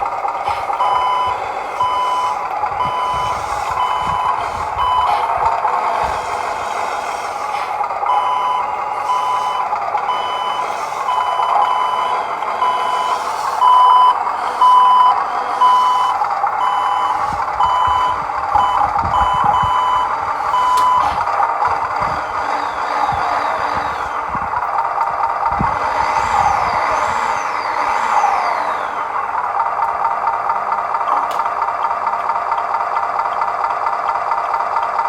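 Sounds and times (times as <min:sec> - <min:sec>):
reverse warning beeps: 0:00.5 - 0:24.0
small electric motor whirr: 0:03.1 - 0:08.4, 0:20.3 - 0:24.6, 0:25.5 - 0:29.2.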